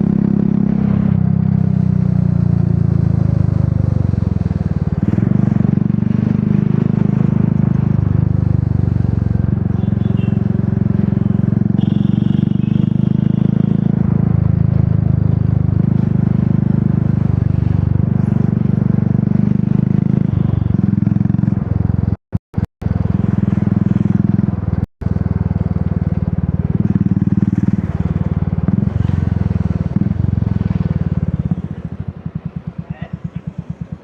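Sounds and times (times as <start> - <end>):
motorcycle engine revving while riding: 0.0 - 22.2, 22.8 - 34.0.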